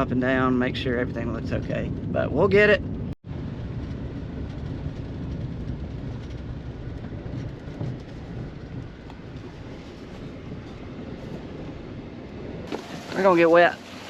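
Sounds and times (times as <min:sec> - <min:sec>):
wind buffeting microphone: 0:00.0 - 0:14.0
water spraying from sprinklers: 0:12.7 - 0:14.0.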